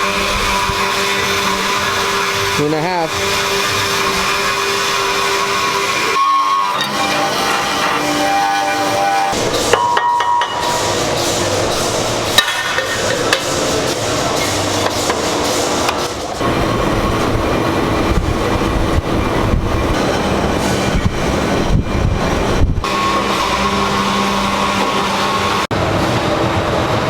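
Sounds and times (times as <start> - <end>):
sharp metallic knocks: 12.4 - 13.6.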